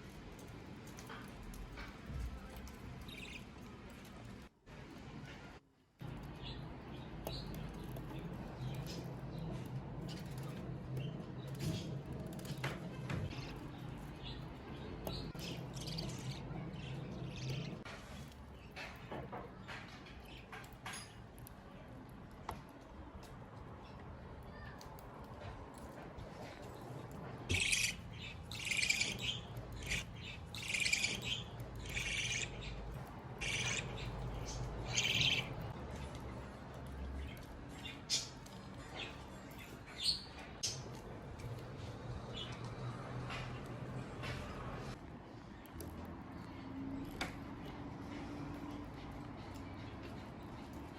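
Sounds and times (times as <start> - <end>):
budgerigar chick calling: 27.5 - 29.3, 33.4 - 33.9
budgerigars chirping: 27.5 - 35.7.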